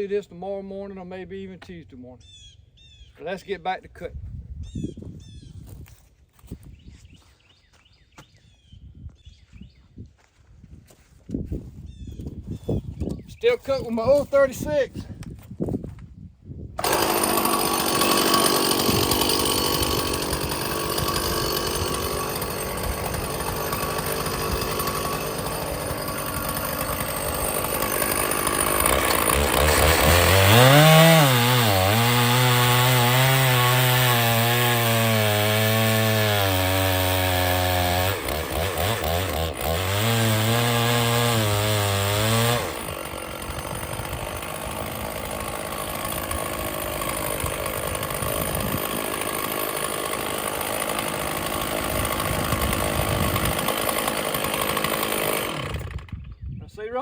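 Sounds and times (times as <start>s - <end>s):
chainsaw running: 16.8s - 56.4s.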